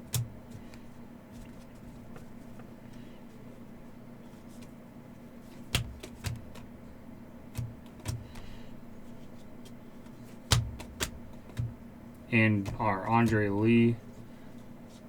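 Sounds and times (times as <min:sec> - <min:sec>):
cards tapping on a table: 0:05.8 - 0:06.7, 0:07.5 - 0:08.6, 0:10.4 - 0:11.8, 0:12.6 - 0:13.6.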